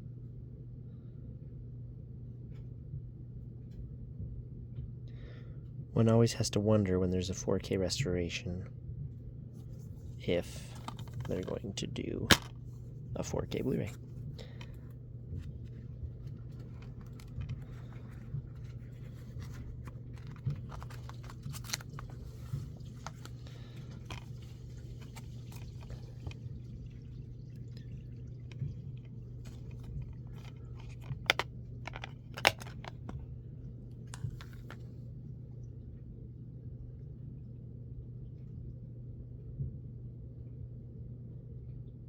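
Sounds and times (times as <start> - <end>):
steady low hum: 0.0 - 42.0
plastic case clicks and taps: 10.8 - 11.6, 12.3 - 12.6, 29.5 - 33.2.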